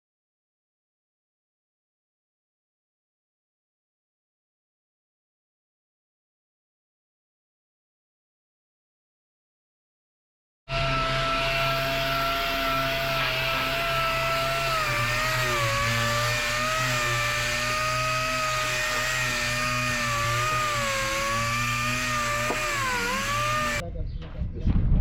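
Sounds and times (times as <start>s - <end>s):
electric power tool whining: 10.7s - 23.8s.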